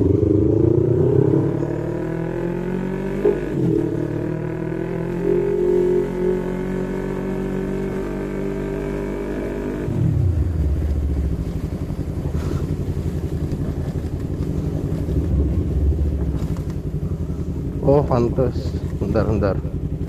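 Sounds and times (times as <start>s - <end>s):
motorcycle engine revving and idling: 0.0s - 20.0s.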